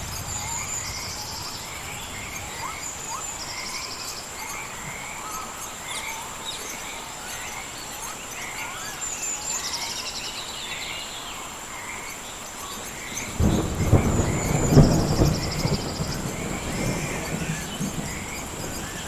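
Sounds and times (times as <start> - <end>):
deep thunder rumble: 0.0 - 5.1, 13.1 - 19.0
pulsed insect trill: 0.0 - 10.0
high insect whine: 0.0 - 19.0
steady rain hiss: 0.0 - 19.0.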